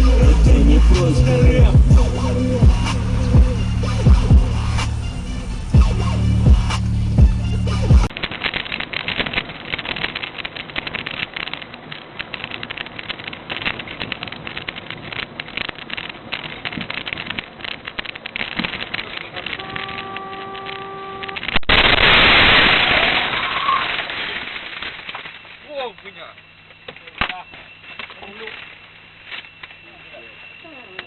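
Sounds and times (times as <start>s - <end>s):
crackling road and wind noise: 0.0s - 31.0s
car horn: 19.3s - 21.6s.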